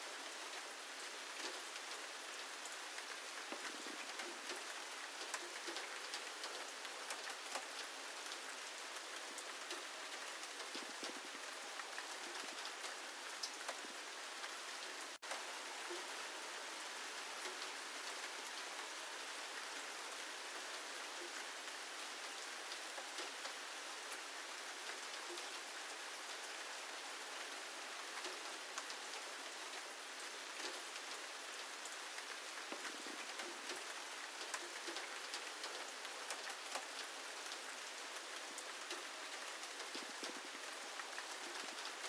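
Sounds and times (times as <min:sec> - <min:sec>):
steady rain falling: 0:00.0 - 0:42.0
raindrops ticking: 0:00.5 - 0:16.2, 0:17.2 - 0:19.8, 0:27.5 - 0:42.0.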